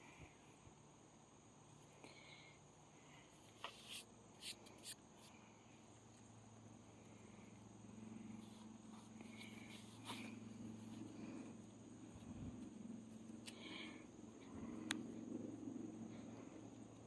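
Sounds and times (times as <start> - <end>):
faint crickets chirping: 0.0 - 17.0
low hum: 5.3 - 17.0.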